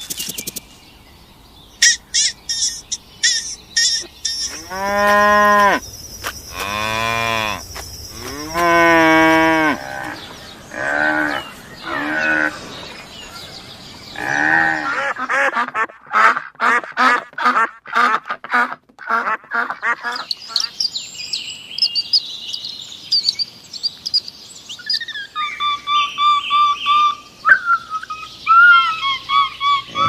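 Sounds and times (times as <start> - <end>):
cows mooing: 4.5 - 5.8, 6.5 - 7.6, 8.2 - 13.1, 14.1 - 15.1.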